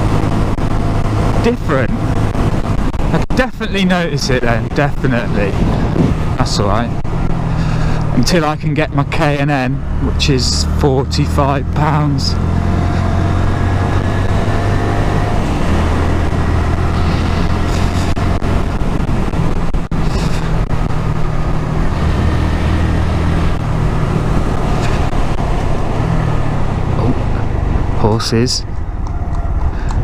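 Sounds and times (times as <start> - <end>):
wind rushing: 0.0 - 3.4, 4.1 - 8.2, 12.4 - 28.0
road noise: 0.0 - 30.0
motorcycle engine running: 4.1 - 30.0.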